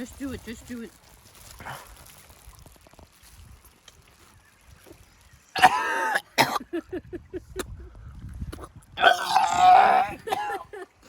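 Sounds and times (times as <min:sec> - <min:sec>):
person retching: 0:05.5 - 0:06.6, 0:08.5 - 0:10.7
person coughing and choking: 0:05.6 - 0:06.8, 0:08.5 - 0:10.9.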